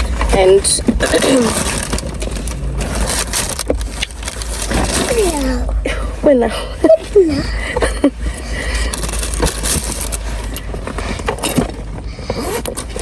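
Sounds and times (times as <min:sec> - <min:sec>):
car cabin rumble: 0:00.0 - 0:13.0
items rustling and clicking: 0:00.0 - 0:13.0.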